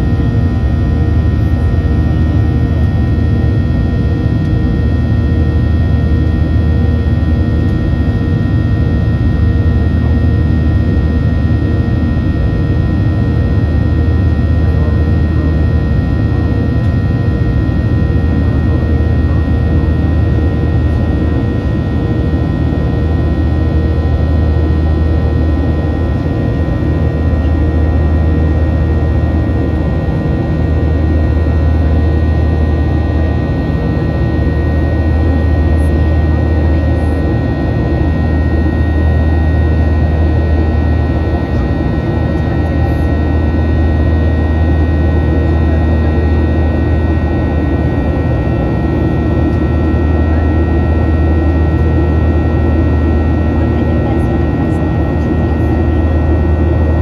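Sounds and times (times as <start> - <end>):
jet engine drone in cabin: 0.0 - 57.0.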